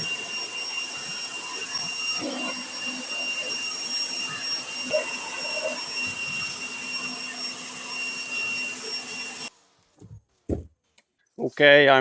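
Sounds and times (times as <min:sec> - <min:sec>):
high whine: 0:00.0 - 0:09.5.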